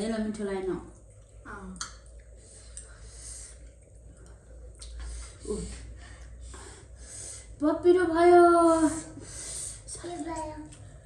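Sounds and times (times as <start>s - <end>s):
low steady hum: 0.0s - 11.0s
breathing: 2.4s - 3.7s, 5.0s - 7.6s, 8.9s - 9.9s.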